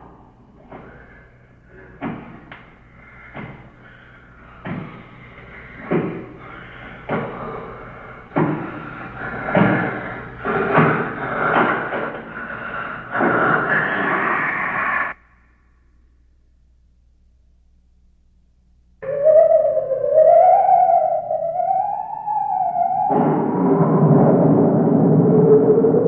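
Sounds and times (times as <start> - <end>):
heavy bangs and thumps: 0.0 - 14.4.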